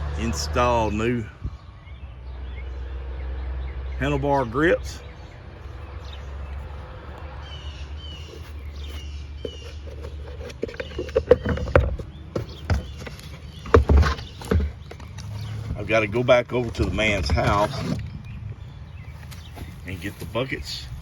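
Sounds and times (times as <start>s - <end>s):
low steady rumble: 0.0s - 21.0s
knocks and clunks: 8.2s - 20.4s.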